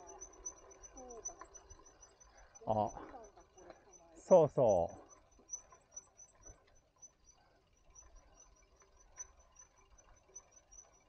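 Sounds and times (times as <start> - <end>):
bicycle rolling on dirt path: 0.0 - 4.0
bird chirping: 1.9 - 3.0.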